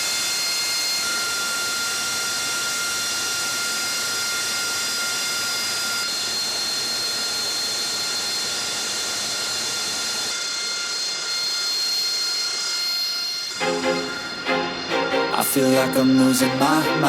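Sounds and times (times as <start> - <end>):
jet engine whine: 0.0 - 17.0
higher whine tone: 13.5 - 17.0.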